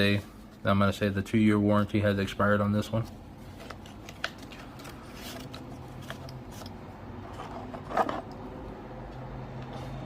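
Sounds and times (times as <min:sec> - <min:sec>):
paper rustling: 0:02.8 - 0:08.2.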